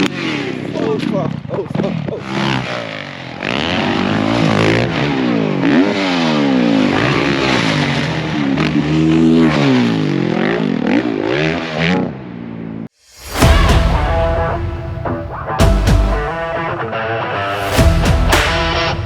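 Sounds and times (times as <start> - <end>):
motocross bike engines revving: 2.2 - 12.1.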